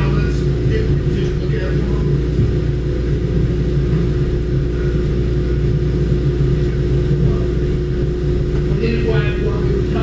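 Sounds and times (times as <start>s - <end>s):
droning hum: 0.0s - 10.0s
low mechanical rumble: 0.0s - 10.0s.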